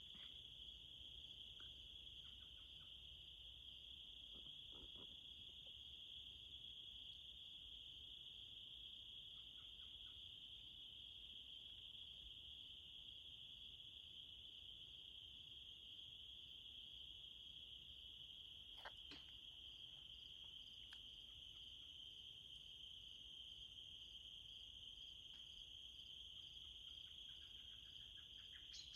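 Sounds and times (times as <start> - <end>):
insects trilling: 0.0 - 28.9
faint bird chirps: 26.8 - 28.9.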